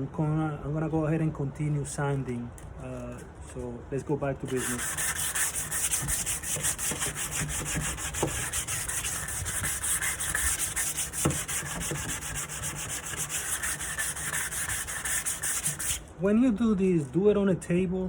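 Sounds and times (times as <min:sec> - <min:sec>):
sandpaper rubbing on wood: 0:04.4 - 0:16.0.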